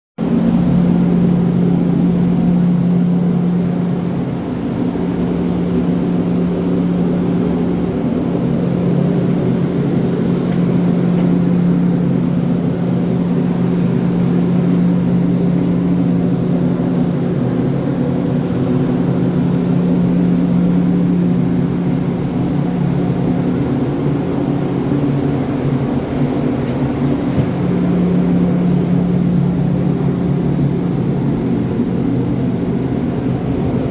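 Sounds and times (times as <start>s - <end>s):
engine droning hum: 0.2s - 33.9s.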